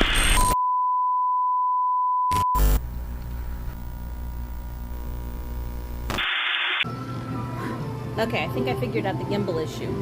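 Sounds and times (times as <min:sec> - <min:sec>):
censor bleep tone: 0:00.2 - 0:02.8
background music: 0:06.9 - 0:10.0.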